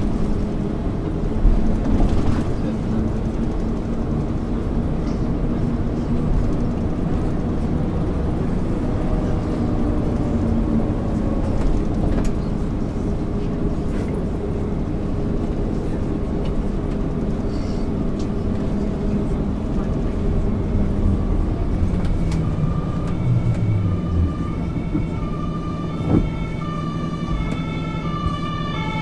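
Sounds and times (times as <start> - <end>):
diesel bus engine running: 0.0 - 29.0.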